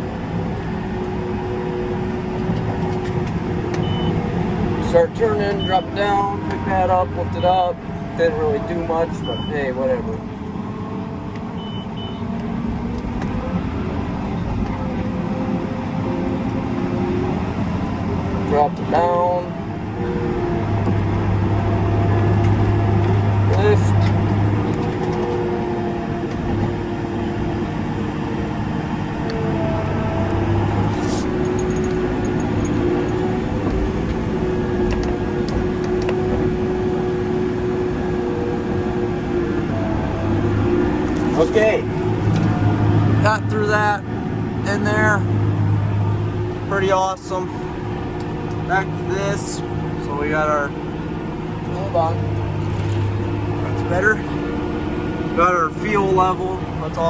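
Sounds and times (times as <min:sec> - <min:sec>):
tractor engine drone: 0:00.0 - 0:57.0
short electronic beeps: 0:03.8 - 0:04.2, 0:05.5 - 0:05.9, 0:09.2 - 0:09.6, 0:11.6 - 0:12.2.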